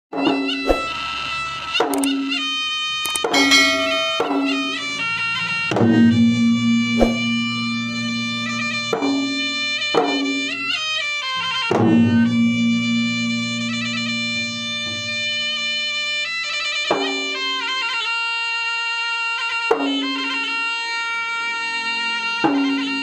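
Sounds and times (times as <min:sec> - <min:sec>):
drum strokes ringing: 0:00.1 - 0:01.1, 0:03.1 - 0:10.8, 0:16.9 - 0:17.7, 0:21.8 - 0:23.0
shrill double-reed melody: 0:00.2 - 0:18.2.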